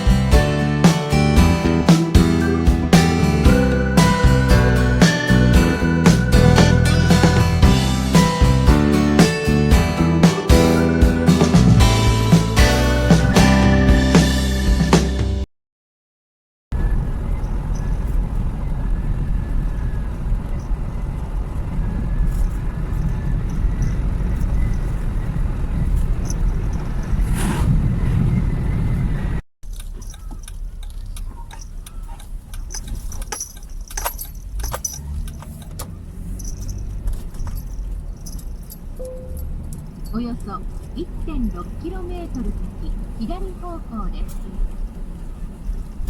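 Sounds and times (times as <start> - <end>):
road and engine noise: 0.0 - 15.5, 16.7 - 46.0
small rattles and clicks: 29.7 - 41.0.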